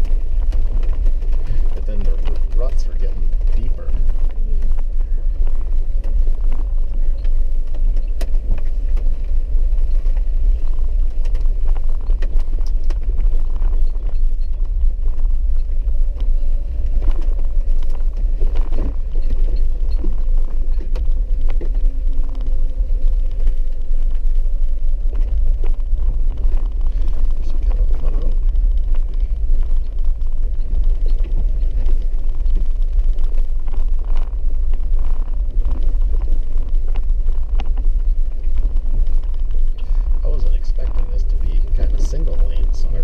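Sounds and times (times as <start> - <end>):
vehicle rumble on rough road: 0.0 - 43.0.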